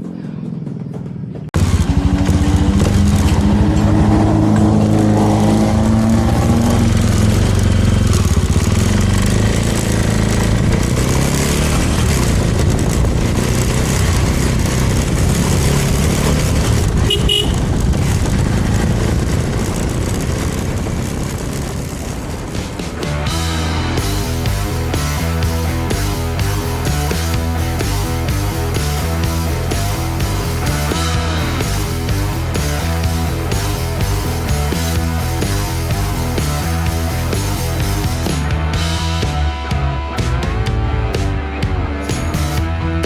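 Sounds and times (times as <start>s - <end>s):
motorcycle engine accelerating: 0.0s - 43.0s
wind and road noise: 0.0s - 43.0s
motorcycle horn toot: 17.0s - 17.8s.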